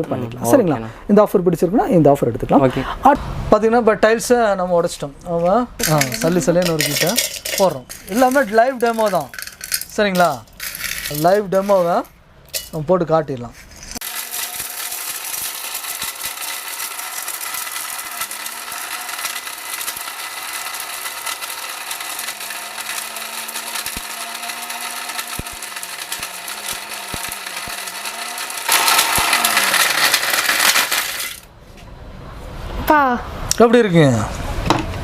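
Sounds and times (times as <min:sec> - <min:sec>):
mixer grinder motor hum: 0:05.8 - 0:09.9, 0:14.0 - 0:31.5
tile fragments rattling: 0:05.8 - 0:12.8, 0:14.0 - 0:31.5.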